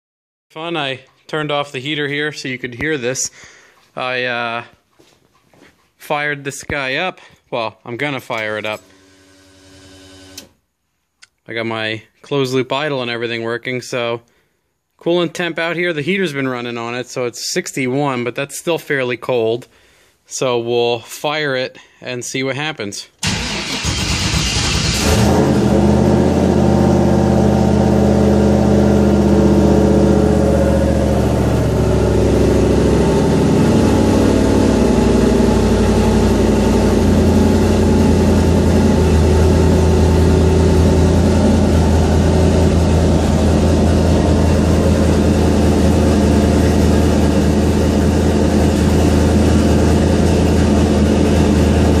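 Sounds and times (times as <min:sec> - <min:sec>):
car engine starting and idling: 0:23.2 - 0:52.0.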